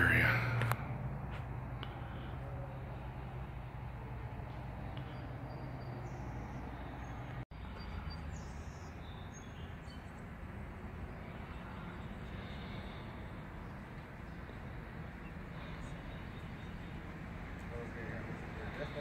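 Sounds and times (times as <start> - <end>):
birds chirping: 1.7 - 19.0.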